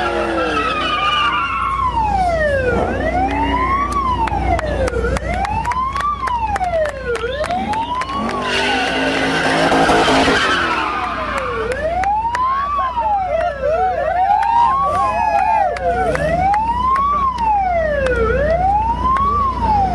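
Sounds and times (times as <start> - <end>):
police siren wailing: 0.0 - 19.9
car engine revving: 7.1 - 12.3
tyre noise from drifting car: 7.5 - 12.2.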